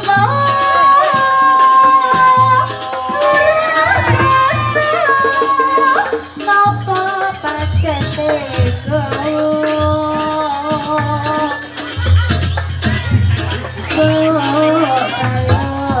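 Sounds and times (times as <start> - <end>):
person singing long held notes: 0.0 - 7.6.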